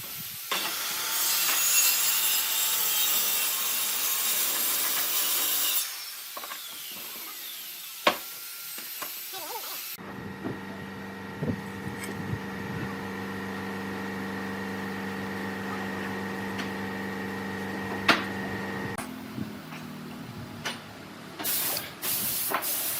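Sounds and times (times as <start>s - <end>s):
sawing on wood: 0.0s - 10.0s
workshop machine hum: 9.9s - 22.9s.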